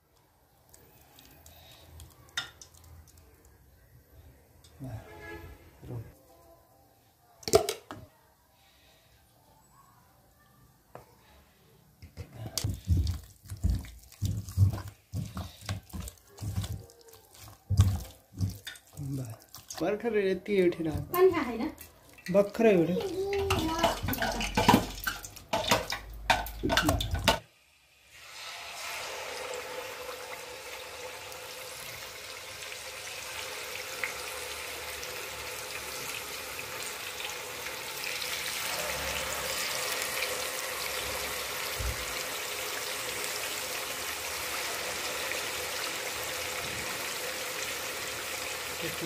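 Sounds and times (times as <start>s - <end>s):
wet handling in steel bowl: 12.6s - 27.3s
chicken sizzling in hot oil: 23.4s - 49.0s.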